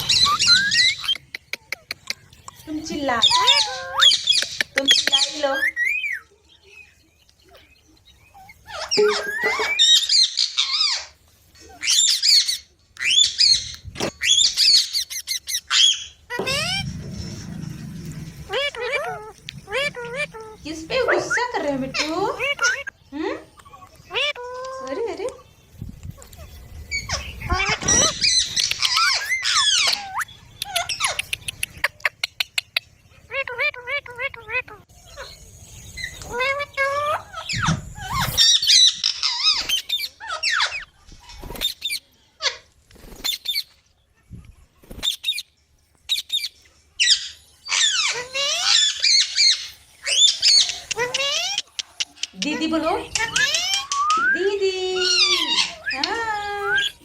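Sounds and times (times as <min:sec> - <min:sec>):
parrot screeching: 0:00.0 - 0:01.1, 0:03.1 - 0:06.2, 0:08.4 - 0:11.2, 0:11.8 - 0:17.5, 0:18.4 - 0:23.0, 0:26.9 - 0:31.2, 0:36.0 - 0:40.9, 0:47.0 - 0:51.7, 0:53.2 - 0:54.4, 0:55.0 - 0:57.0
parakeet squawking and chirping: 0:00.0 - 0:06.3, 0:08.2 - 0:23.0, 0:23.6 - 0:25.1, 0:26.1 - 0:32.2, 0:33.3 - 0:43.8, 0:46.1 - 0:57.0
sharp clicks: 0:50.6 - 0:54.4.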